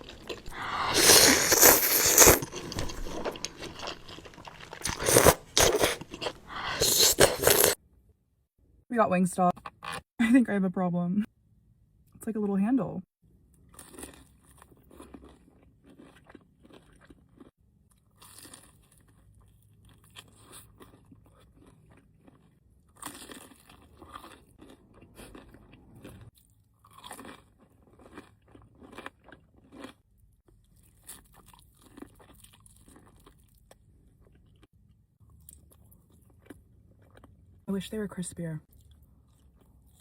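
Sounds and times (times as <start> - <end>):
crunchy bites and chewing: 0.0 - 7.8, 13.6 - 37.4.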